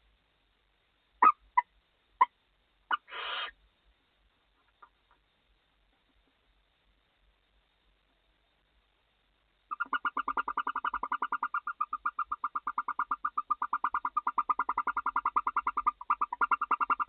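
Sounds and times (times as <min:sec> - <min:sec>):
owl twittering chatter: 0:09.7 - 0:17.0.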